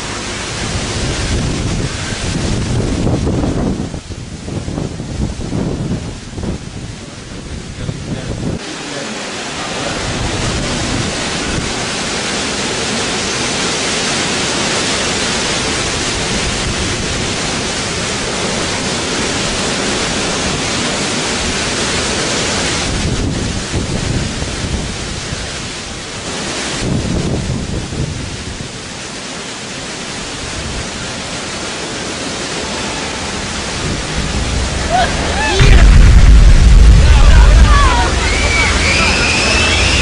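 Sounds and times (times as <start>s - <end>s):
low thunder rumble: 0.0s - 8.6s, 33.4s - 40.0s
gusting wind: 0.0s - 40.0s
heavy rain: 0.0s - 40.0s.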